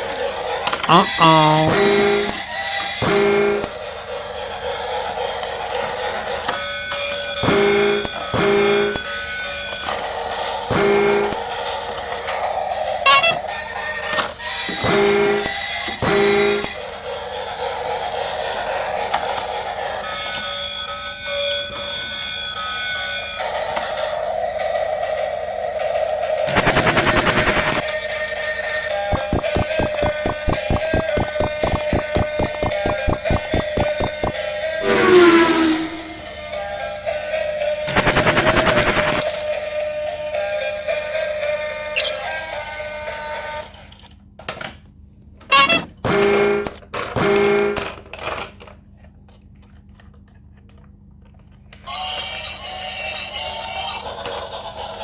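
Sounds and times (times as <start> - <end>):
electronic buzzer tone: 13.1 - 13.4, 26.5 - 27.8, 29.1 - 36.2.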